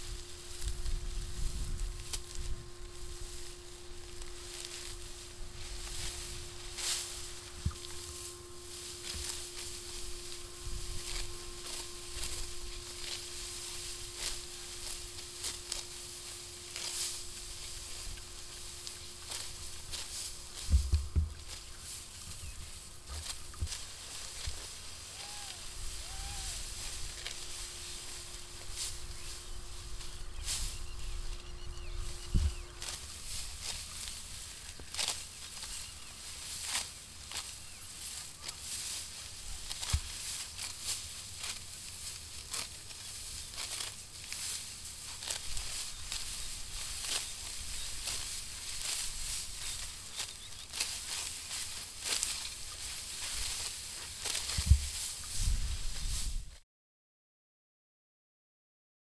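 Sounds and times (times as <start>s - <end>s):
wind rumble on microphone: 0.0s - 3.5s, 29.8s - 32.8s, 54.5s - 56.6s
low wind rumble: 0.0s - 13.1s
faint hum: 0.0s - 56.5s
wheat stalks swishing: 0.0s - 56.6s
short high calls: 24.8s - 32.8s.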